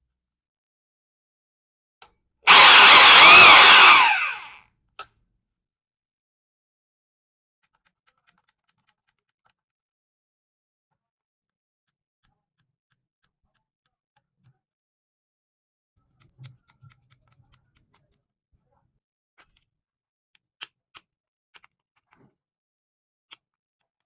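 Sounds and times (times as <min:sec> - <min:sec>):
faint clicks and taps: 0:16.0 - 0:18.2.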